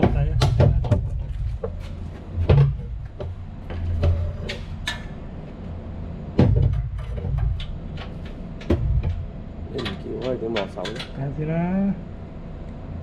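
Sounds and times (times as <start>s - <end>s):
low machinery hum: 0.0s - 13.0s
heavy thump: 6.3s - 7.6s, 8.7s - 9.3s.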